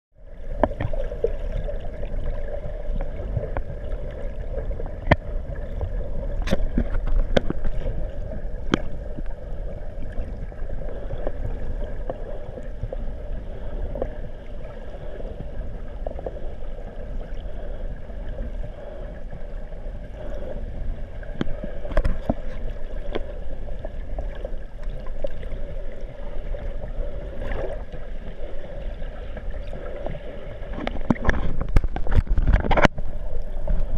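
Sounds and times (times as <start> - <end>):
muffled water noise: 0.1 - 33.9.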